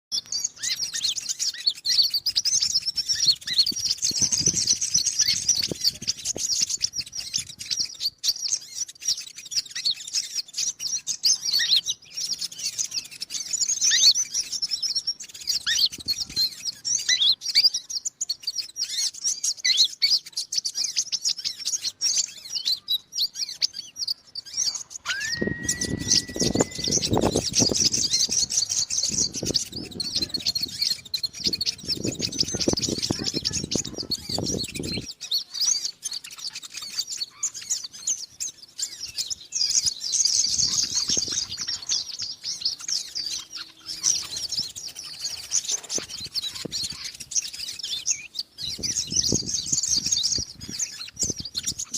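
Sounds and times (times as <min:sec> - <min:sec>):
bird twittering chirps: 0:00.1 - 0:51.9
steady held tone: 0:25.1 - 0:28.3.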